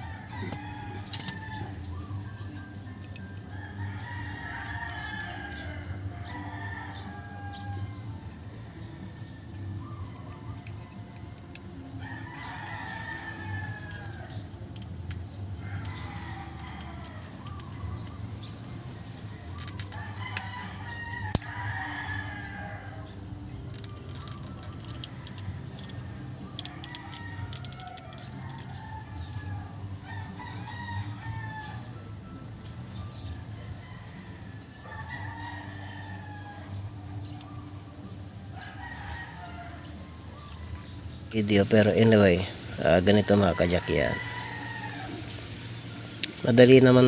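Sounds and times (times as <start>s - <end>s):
rooster crowing: 3.6s - 9.2s, 19.3s - 23.1s, 26.6s - 32.4s, 33.6s - 36.9s, 42.9s - 45.3s.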